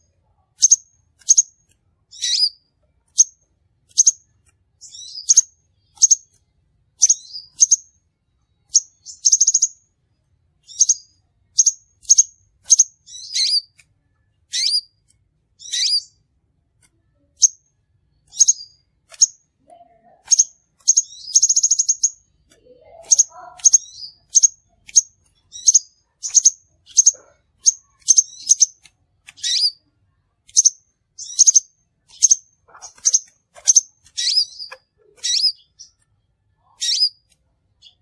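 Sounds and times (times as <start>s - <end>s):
bird trills: 0.6s - 4.2s, 4.8s - 6.4s, 7.0s - 8.0s, 8.6s - 9.8s, 10.6s - 13.8s, 14.5s - 15.0s, 15.6s - 16.2s, 18.2s - 19.4s, 20.0s - 29.9s, 30.5s - 36.0s, 36.6s - 38.0s.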